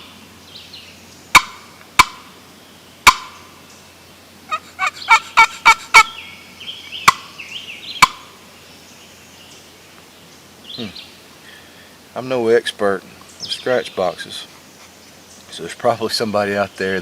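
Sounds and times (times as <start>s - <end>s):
turkey call notes: 1.3s - 2.4s, 3.0s - 3.6s, 4.5s - 8.4s.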